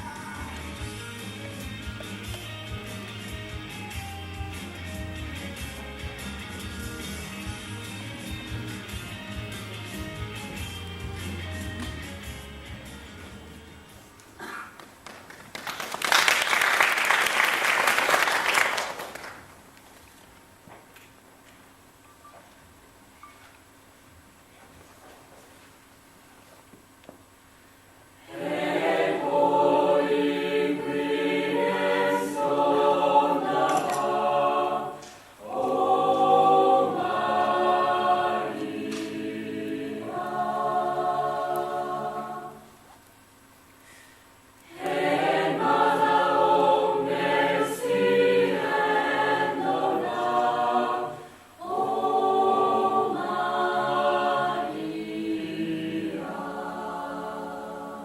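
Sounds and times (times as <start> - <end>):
vocal group singing in harmony: 28.2 - 43.0, 44.6 - 58.0
singers breathing: 43.8 - 44.4.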